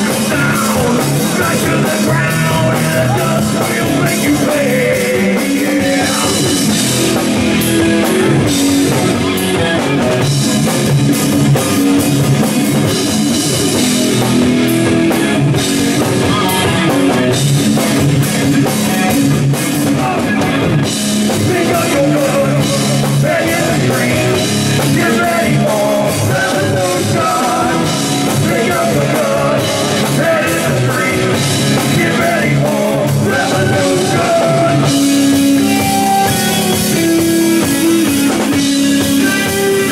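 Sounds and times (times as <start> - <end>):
person singing: 0.0 - 6.7, 21.3 - 39.9
drum kit: 0.0 - 39.9
electric guitar: 0.0 - 39.9.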